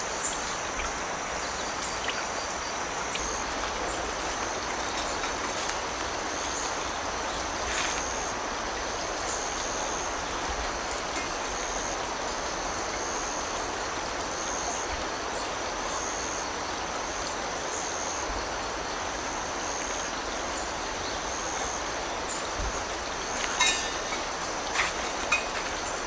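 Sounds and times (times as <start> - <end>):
creek water flowing over rocks: 0.0 - 26.0
insects trilling: 0.0 - 26.0.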